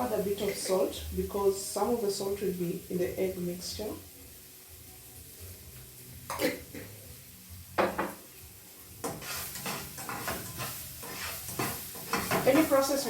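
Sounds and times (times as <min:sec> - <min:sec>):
utensil knocking on frying pan: 0:07.8 - 0:08.2, 0:09.0 - 0:12.9
stirring vegetables in pan: 0:08.0 - 0:13.0.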